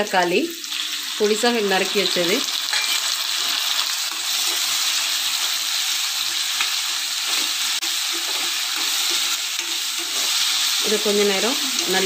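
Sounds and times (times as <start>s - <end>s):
vegetables sizzling in hot oil: 0.0s - 12.0s
spatula scraping a pan: 6.2s - 12.0s.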